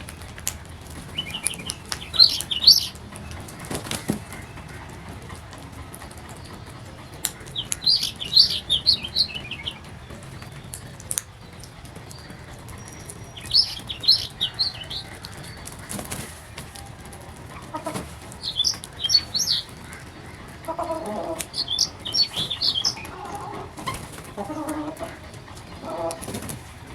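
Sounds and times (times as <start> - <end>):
lower bird calls: 0.0 - 26.9
small birds chirping: 0.0 - 26.9.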